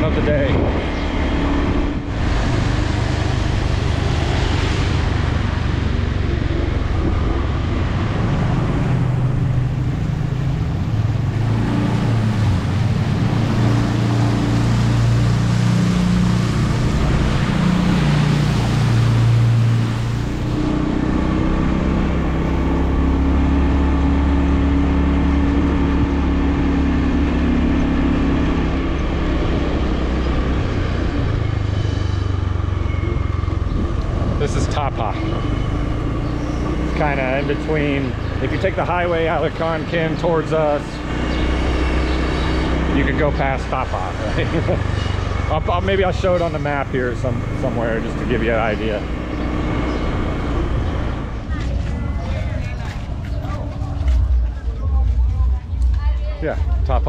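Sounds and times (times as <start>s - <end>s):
road and wind noise: 0.0s - 57.0s
vehicle engine hum: 0.0s - 57.0s.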